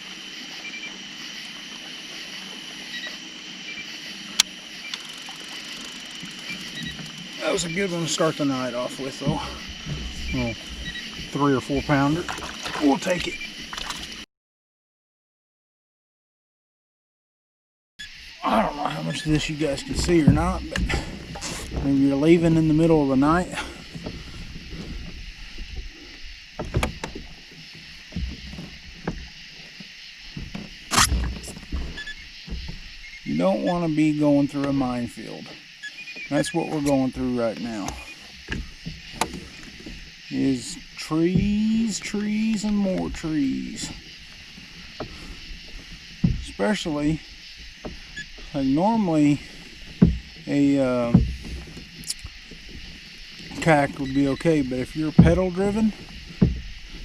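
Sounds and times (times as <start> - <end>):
steady high hiss: 0.0 - 14.2, 18.0 - 57.0
kayak hull knocks and clicks: 4.4 - 14.2, 19.2 - 33.8, 35.5 - 57.0
sharp click: 30.9 - 31.3.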